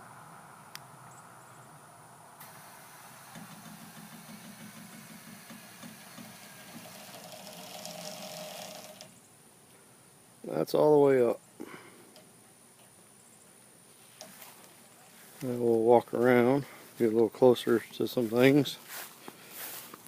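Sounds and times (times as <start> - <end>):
low motor hum: 2.0 - 9.2.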